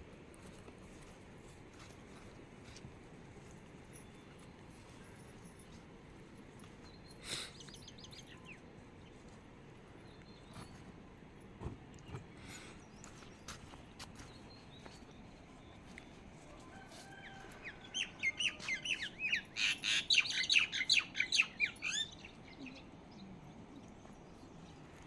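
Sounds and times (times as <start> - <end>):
bird chirping: 17.8 - 25.0.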